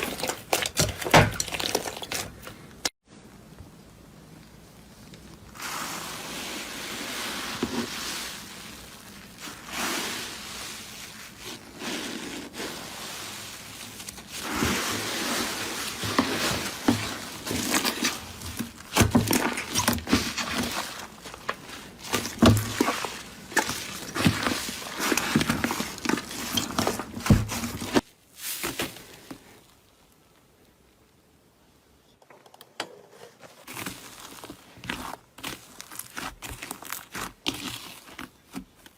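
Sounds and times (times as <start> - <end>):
hands crushing crackly material: 33.6 - 38.9.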